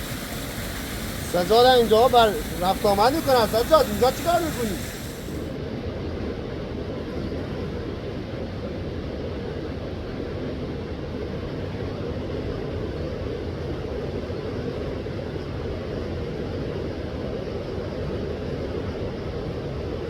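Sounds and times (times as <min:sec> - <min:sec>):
river flowing: 0:00.0 - 0:05.5.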